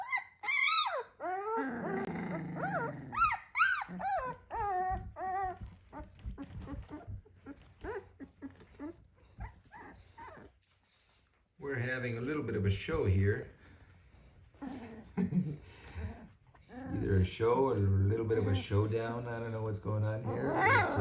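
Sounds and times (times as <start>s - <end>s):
puppy growling cry: 0.0s - 10.6s, 14.5s - 21.0s
puppies squealing and yelping: 0.0s - 11.6s, 15.8s - 21.0s.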